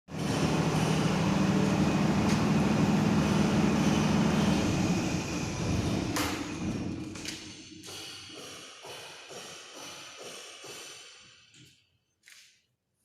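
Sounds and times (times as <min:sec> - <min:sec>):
machinery humming and hissing: 0:00.1 - 0:07.3.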